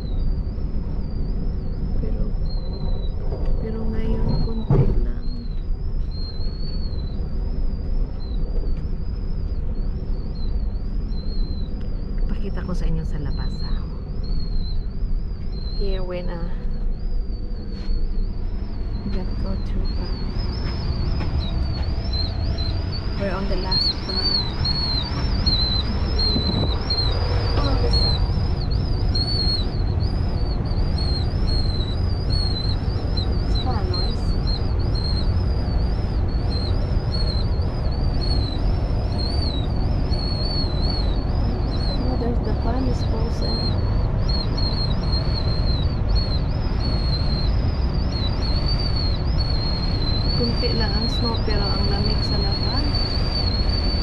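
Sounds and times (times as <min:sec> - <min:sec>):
high wavering whine: 0:00.0 - 0:54.0
train rumbling on rails: 0:01.6 - 0:06.7, 0:17.7 - 0:47.3, 0:48.0 - 0:54.0.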